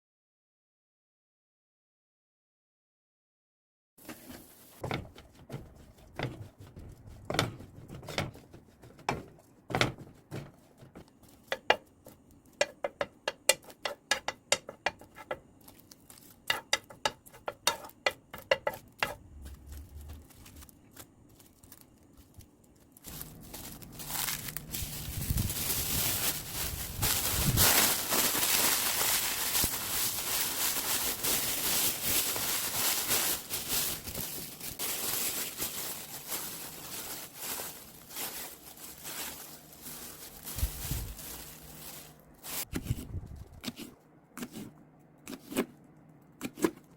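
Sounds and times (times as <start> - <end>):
dried seaweed sheets crackling: 18.6 - 42.7.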